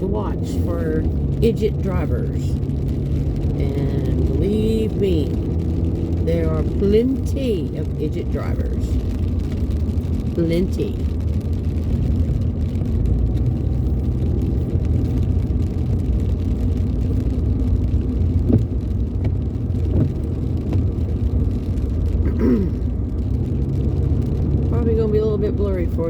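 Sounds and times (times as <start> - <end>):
car driving on wet road: 0.0 - 26.0.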